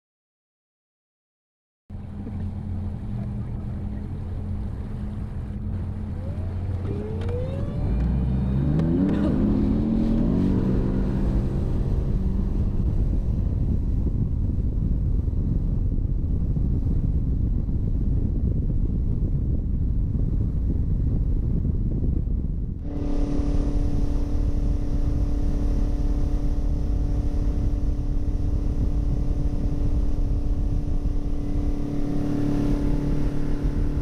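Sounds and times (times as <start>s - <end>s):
engine running and revving up: 1.9s - 14.6s, 22.8s - 34.0s.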